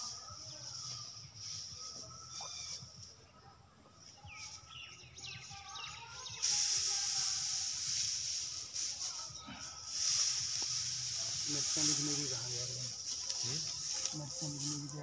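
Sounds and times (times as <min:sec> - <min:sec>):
bird chirping: 0:00.0 - 0:07.9
loud steady hiss: 0:06.2 - 0:15.0.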